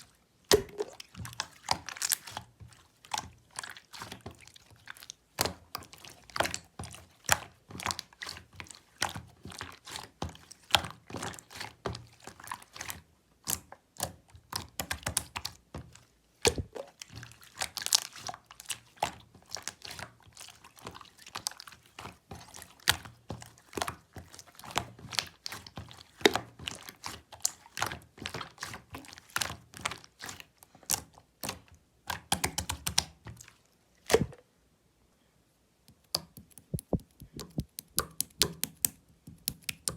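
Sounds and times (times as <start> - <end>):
slime squeezed by hand: 0.5 - 1.1, 16.5 - 17.0, 34.1 - 34.4.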